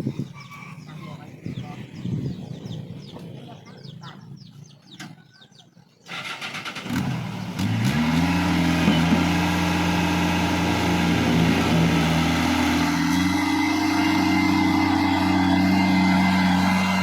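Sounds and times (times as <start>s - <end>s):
engine starting and idling: 6.0s - 17.0s.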